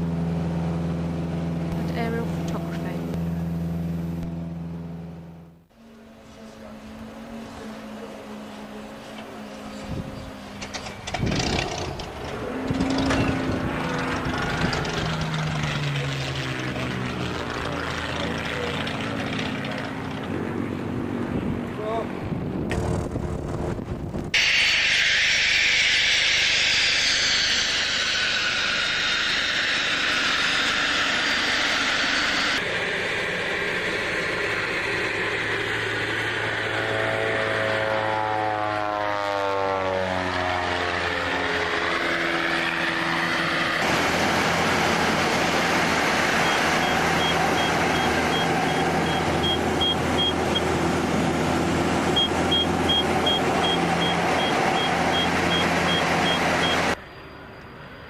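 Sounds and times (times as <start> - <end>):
light aircraft engines running: 0.0 - 58.0
high beep: 46.4 - 50.6, 52.2 - 57.8.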